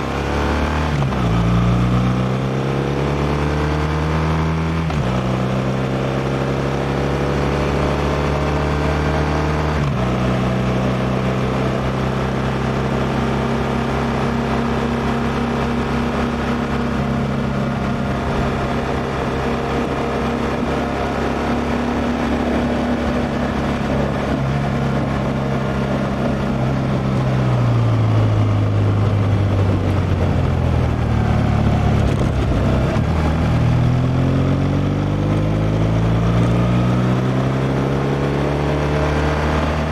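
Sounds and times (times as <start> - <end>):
road noise: 0.0 - 39.9
motorcycle engine running: 10.0 - 34.2
wind noise: 15.4 - 33.9.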